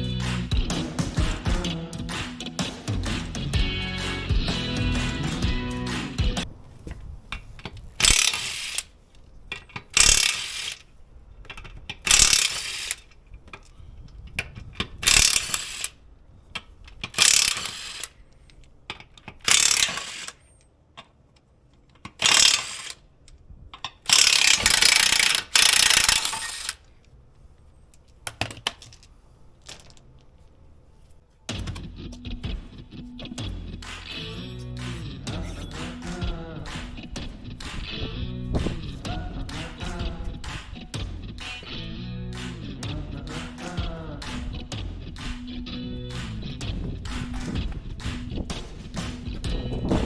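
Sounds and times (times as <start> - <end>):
ratchet wrench clicking: 7.6 - 8.9, 9.5 - 10.9, 11.5 - 13.7, 14.4 - 16.0, 16.6 - 20.5, 21.9 - 23.0, 23.8 - 26.9.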